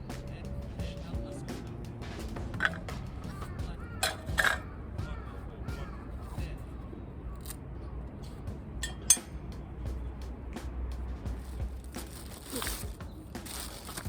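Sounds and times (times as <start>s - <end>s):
faint voices: 0.0s - 10.2s.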